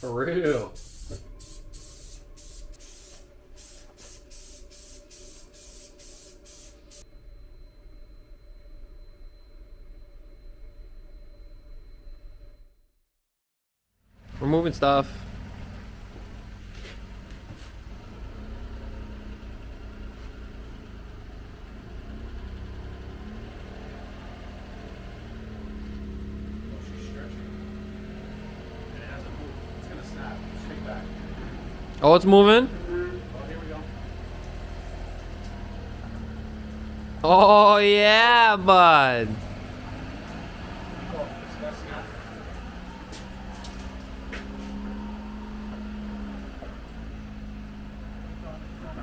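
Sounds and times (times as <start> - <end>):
spray paint bursts: 0.6 - 7.0
small truck engine revving: 14.2 - 37.3, 39.0 - 49.0.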